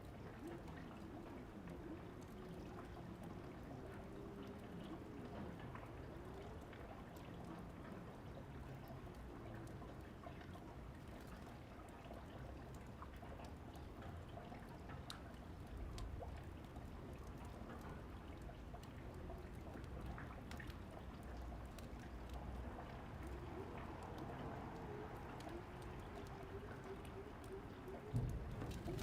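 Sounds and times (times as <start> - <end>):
steady rain falling: 0.0 - 29.0
fireplace crackling and popping: 24.8 - 29.0.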